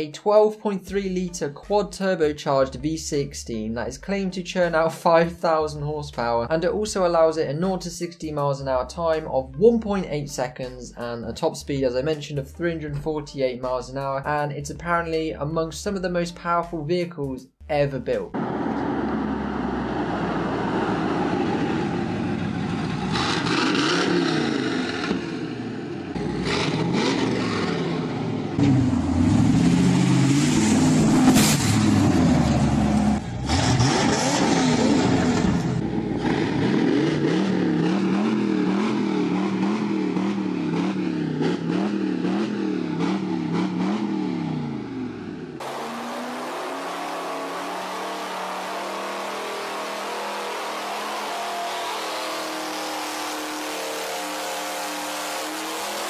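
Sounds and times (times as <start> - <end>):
car engine revving: 18.3 - 56.0
turbocharged engine on test stand: 18.4 - 56.0.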